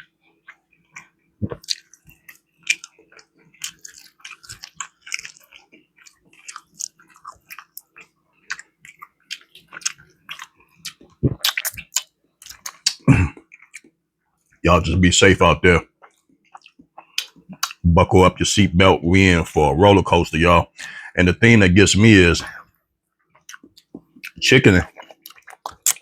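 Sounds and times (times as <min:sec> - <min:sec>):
person chewing and smacking: 0:00.0 - 0:14.7, 0:15.8 - 0:17.8, 0:23.2 - 0:26.0.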